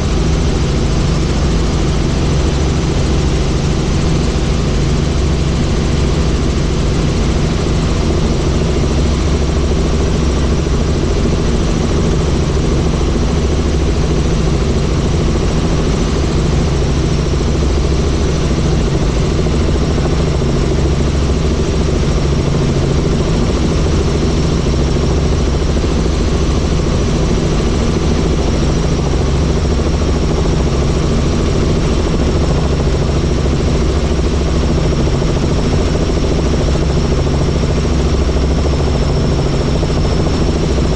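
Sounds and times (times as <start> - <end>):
helicopter engine and rotor noise: 0.0 - 40.9.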